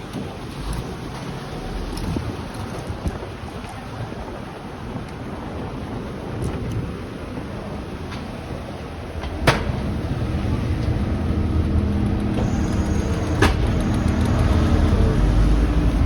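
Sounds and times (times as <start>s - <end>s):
city street traffic: 0.0s - 16.0s
vehicle engine hum: 8.8s - 16.0s.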